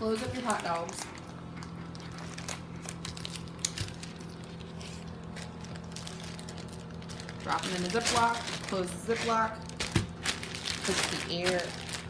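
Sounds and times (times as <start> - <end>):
plastic packaging crinkling: 0.0 - 12.0
steady low hum: 0.0 - 12.0.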